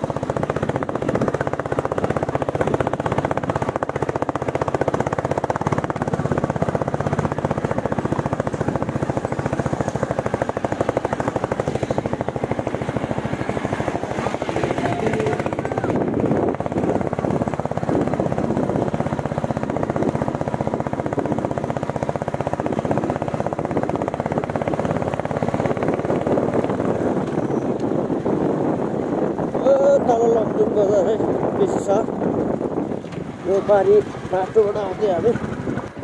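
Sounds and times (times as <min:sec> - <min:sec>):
motorcycle engine thumping: 0:00.0 - 0:30.6, 0:31.2 - 0:36.0.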